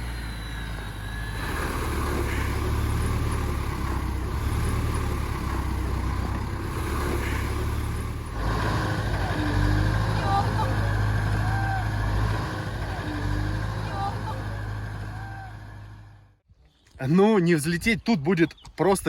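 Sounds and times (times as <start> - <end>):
motorcycle engine climbing: 0.0 - 17.0.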